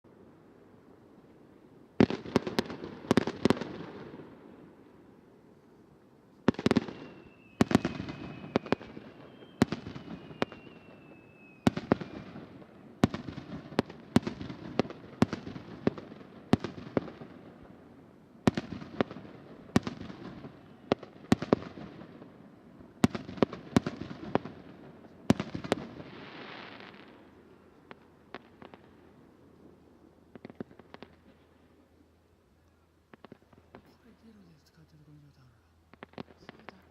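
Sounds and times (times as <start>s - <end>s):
fireworks bangs: 2.0s - 4.5s, 6.4s - 17.8s, 18.4s - 29.2s
fireworks whistling: 6.5s - 13.4s.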